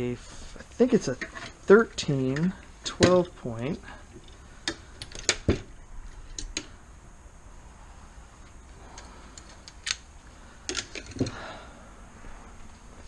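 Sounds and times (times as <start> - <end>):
metal sockets clinking: 4.1 - 6.6.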